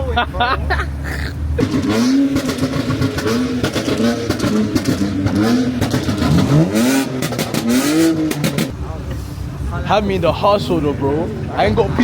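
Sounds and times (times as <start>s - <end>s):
car engines revving: 0.0s - 12.0s
exhaust pops and crackles: 1.6s - 9.2s.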